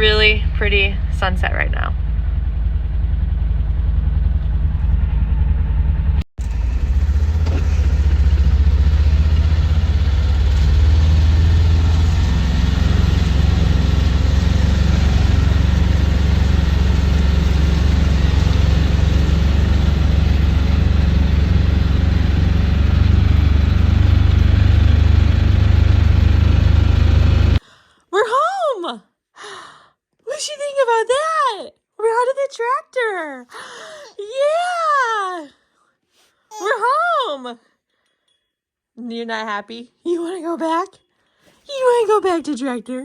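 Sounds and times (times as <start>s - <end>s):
tractor engine drone: 0.0s - 27.6s.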